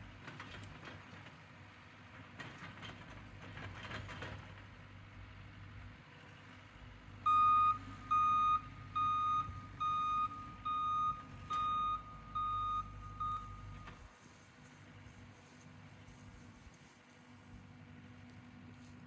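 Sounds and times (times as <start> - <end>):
low engine hum: 0.0 - 19.0
backup alarm beeping: 7.2 - 14.1.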